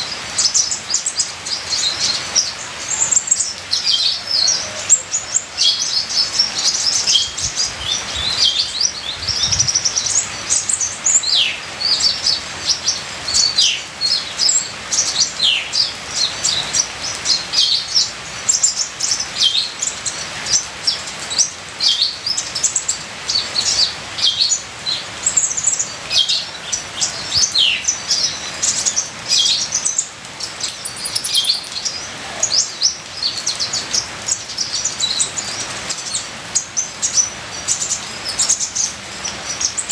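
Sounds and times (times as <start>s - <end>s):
bird singing high chirps and trills: 0.0s - 39.9s.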